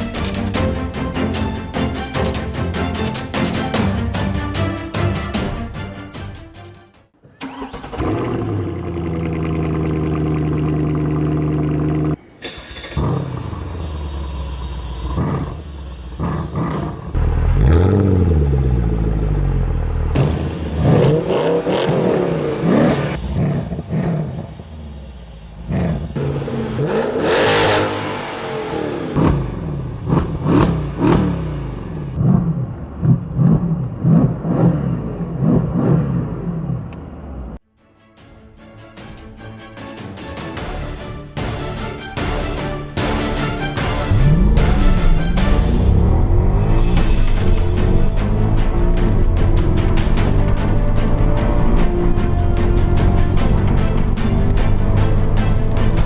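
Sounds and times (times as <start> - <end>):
car engine revving: 7.4 - 37.6, 43.8 - 56.0.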